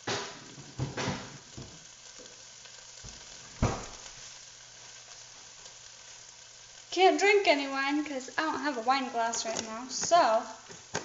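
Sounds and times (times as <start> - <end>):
rice sizzling in a pan: 0.0 - 11.0
sharp knock: 3.6 - 4.0.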